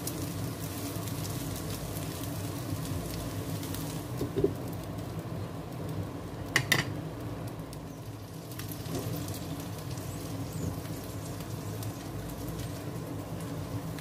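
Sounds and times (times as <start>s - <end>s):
omelette sizzling in oil: 0.0s - 14.0s.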